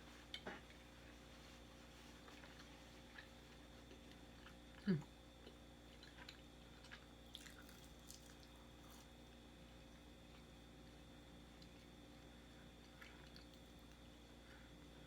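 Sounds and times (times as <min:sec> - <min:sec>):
chewing with wet clicks: 0:02.2 - 0:09.2, 0:09.9 - 0:14.6.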